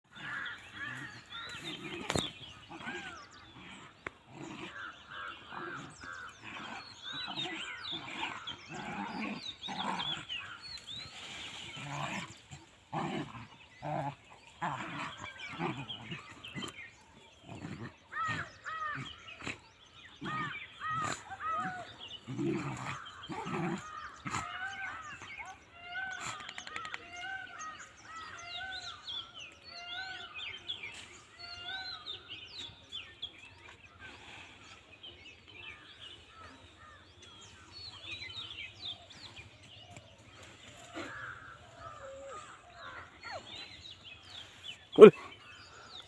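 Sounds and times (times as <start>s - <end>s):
dogs growling and snarling: 0.1s - 46.0s.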